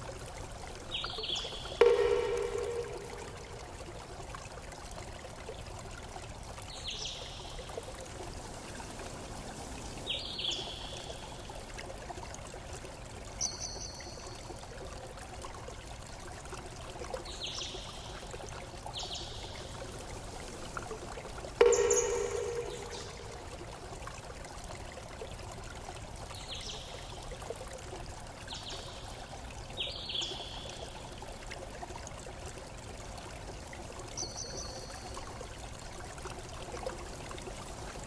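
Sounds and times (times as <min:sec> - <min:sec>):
stream water trickling: 0:00.0 - 0:38.0
struck ringing tone: 0:01.8 - 0:03.7, 0:21.6 - 0:23.5
falling bird chirps: 0:21.6 - 0:23.4.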